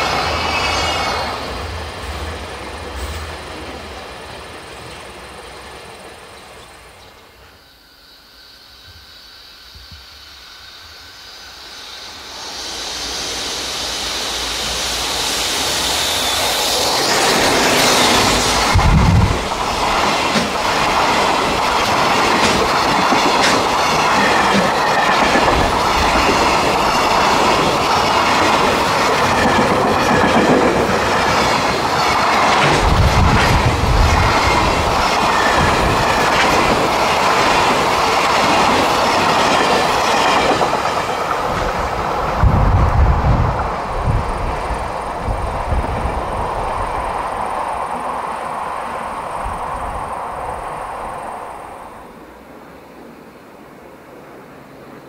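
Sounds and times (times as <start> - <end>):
freight train passing: 0.0 - 55.0
wheels clacking over rail joints: 16.8 - 43.8.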